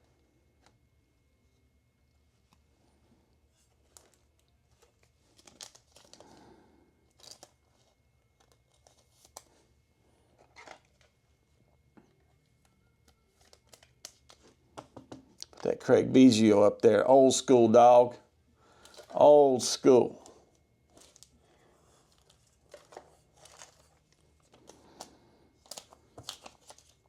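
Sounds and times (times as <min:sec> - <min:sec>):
card packaging crinkling and tearing: 0:03.8 - 0:06.4, 0:07.1 - 0:09.6, 0:10.4 - 0:11.1, 0:13.0 - 0:14.6, 0:18.7 - 0:27.0.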